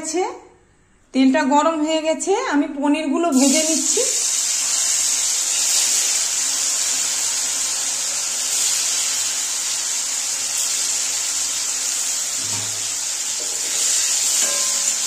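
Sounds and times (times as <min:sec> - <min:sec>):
food sizzling in hot oil: 0:03.3 - 0:15.0.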